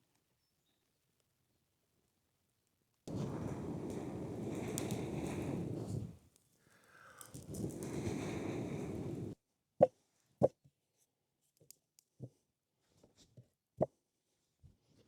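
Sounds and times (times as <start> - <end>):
steady rushing noise: 3.1 - 6.2, 7.5 - 9.4.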